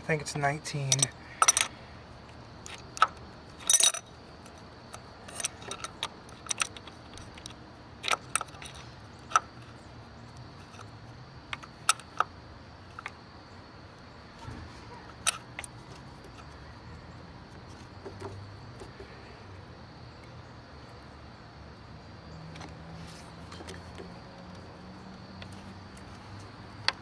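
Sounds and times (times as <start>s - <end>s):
wrench clinking on metal: 0.9s - 1.7s, 2.7s - 4.1s.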